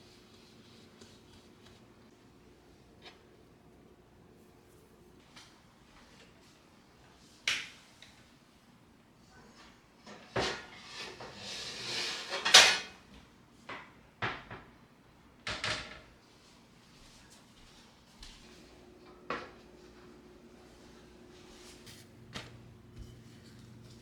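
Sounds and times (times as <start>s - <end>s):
rustling and scraping: 20.6s - 24.0s.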